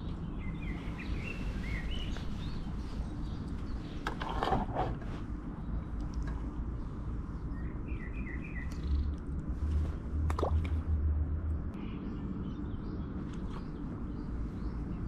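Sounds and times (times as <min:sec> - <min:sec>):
low outdoor rumble: 0:00.0 - 0:15.0
small bird chirping: 0:07.4 - 0:09.2.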